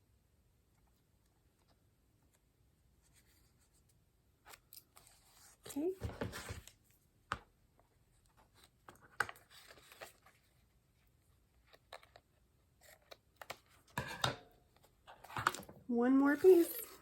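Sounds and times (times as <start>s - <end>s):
paper rustling: 8.2s - 13.9s.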